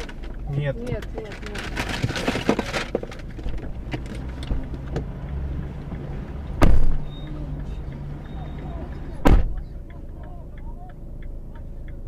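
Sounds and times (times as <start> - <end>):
car engine humming: 0.0 - 12.0
loud sharp thump: 6.6 - 7.1, 9.2 - 9.6.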